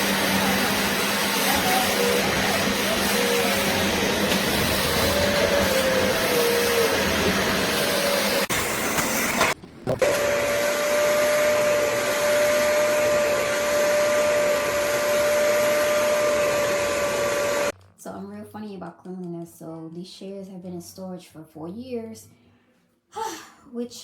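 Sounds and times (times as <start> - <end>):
carpet cleaner suction motor: 0.0 - 17.7.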